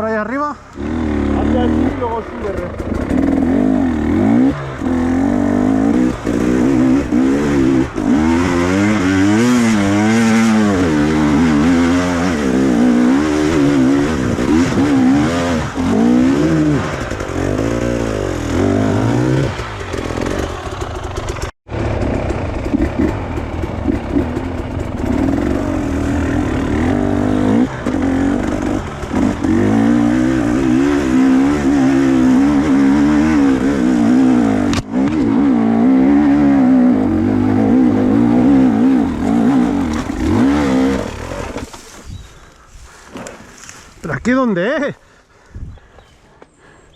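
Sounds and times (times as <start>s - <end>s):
motorcycle engine revving: 0.6s - 43.8s.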